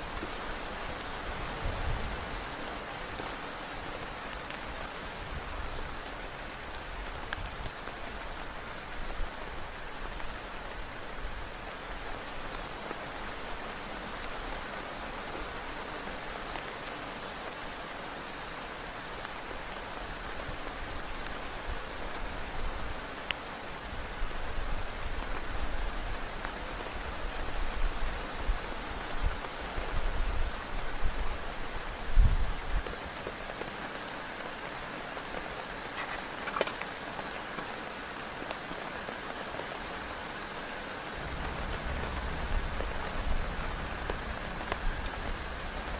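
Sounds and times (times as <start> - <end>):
heavy rain on a tent: 0.0 - 45.9
low rumbling: 41.2 - 45.9.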